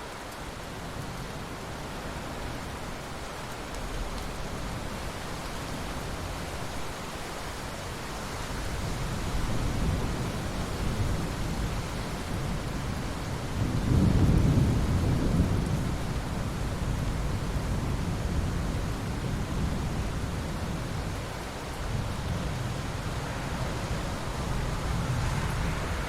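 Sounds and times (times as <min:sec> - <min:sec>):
steady rainfall: 0:00.0 - 0:26.0
thunder rumbling: 0:13.4 - 0:18.8.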